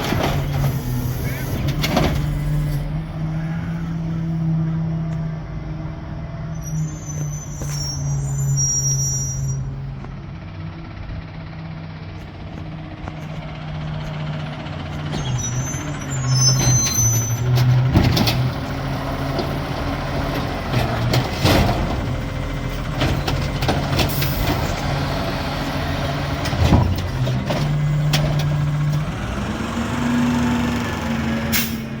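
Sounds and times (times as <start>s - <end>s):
garbage truck engine running: 0.0s - 32.0s.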